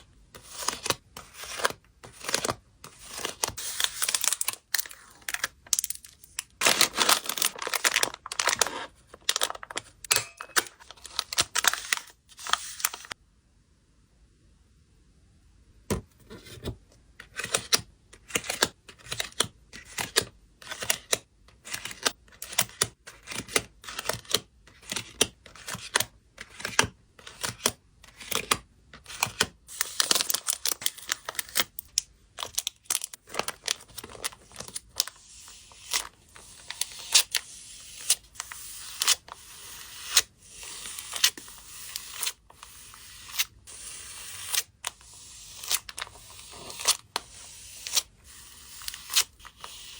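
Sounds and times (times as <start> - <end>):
packaging tearing: 0.4 - 9.9, 29.8 - 37.4
packaging crinkling and rustling: 0.5 - 13.2, 29.8 - 37.4.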